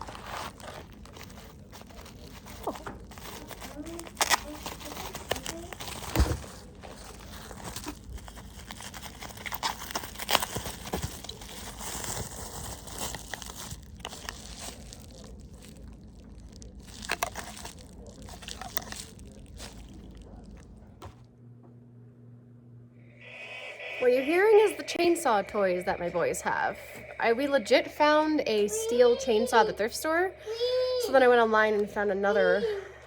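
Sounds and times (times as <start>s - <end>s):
crinkling and rustling handling noise: 0.0s - 21.3s
quiet low hum: 0.0s - 33.0s.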